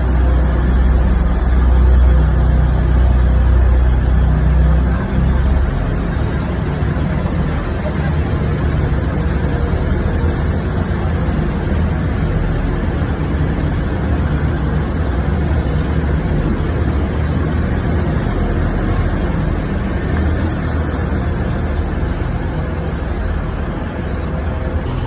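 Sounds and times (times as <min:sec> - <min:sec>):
train engine running: 0:00.0 - 0:25.0.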